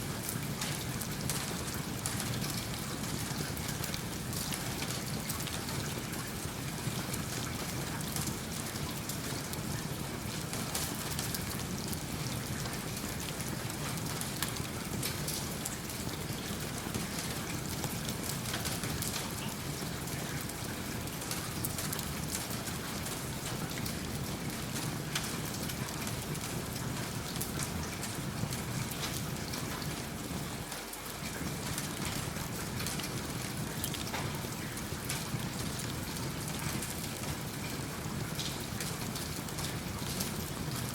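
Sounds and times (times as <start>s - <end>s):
steady rain falling: 0.0s - 40.9s
wood fire crackling: 20.9s - 29.9s, 31.2s - 40.9s.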